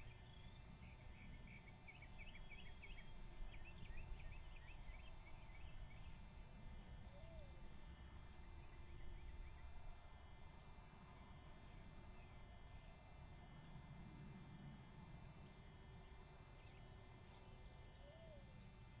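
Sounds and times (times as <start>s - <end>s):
faint bird chirping: 0.0s - 6.4s, 16.5s - 19.0s.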